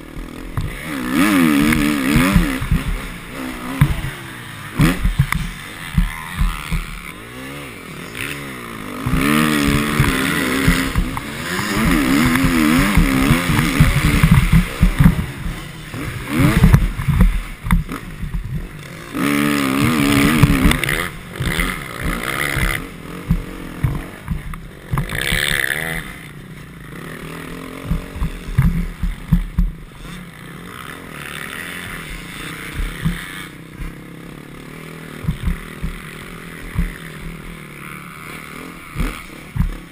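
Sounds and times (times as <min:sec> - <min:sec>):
motocross bike engine revving: 0:00.0 - 0:39.9
low thuds: 0:01.6 - 0:07.2, 0:08.9 - 0:18.8, 0:19.8 - 0:26.1, 0:27.8 - 0:30.0, 0:31.8 - 0:34.0, 0:35.2 - 0:37.6, 0:38.8 - 0:39.9.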